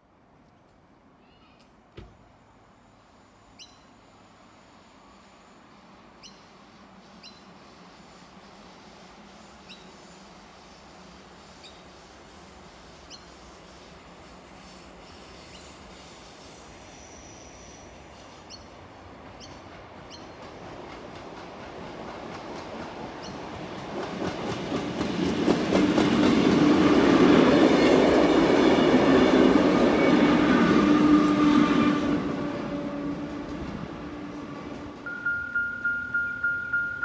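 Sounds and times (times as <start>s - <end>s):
train rumbling on rails: 2.7s - 37.0s
short high chirps: 35.1s - 37.0s.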